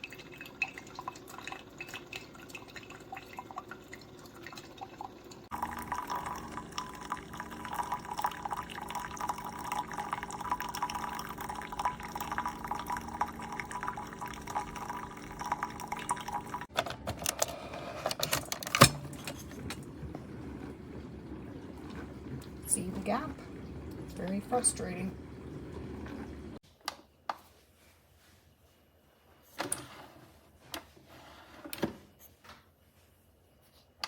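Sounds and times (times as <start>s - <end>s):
coffee dripping: 0.0s - 16.7s
coffee maker hum: 2.6s - 16.7s, 17.3s - 26.6s.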